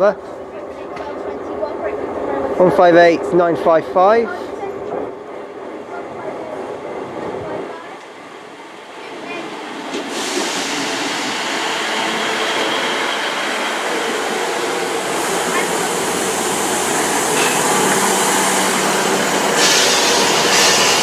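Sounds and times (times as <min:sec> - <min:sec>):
diesel train engine hum: 0:00.0 - 0:21.0
hiss: 0:09.9 - 0:11.9, 0:15.0 - 0:21.0.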